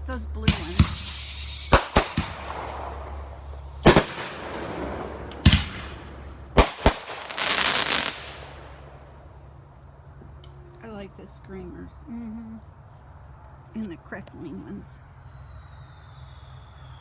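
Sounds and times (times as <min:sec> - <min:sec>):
firework bangs: 0:00.4 - 0:09.4
fireworks hissing: 0:00.5 - 0:08.9.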